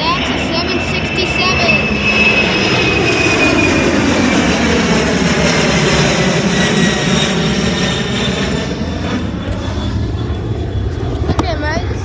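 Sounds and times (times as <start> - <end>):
high jet engine whine: 0.0 - 12.0
jet engines roaring at takeoff: 0.0 - 12.0.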